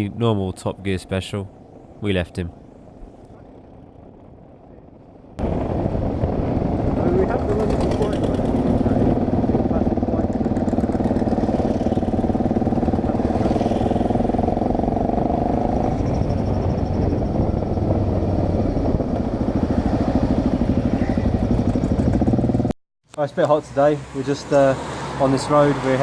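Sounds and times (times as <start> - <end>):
motorcycle engine running: 5.4 - 22.7.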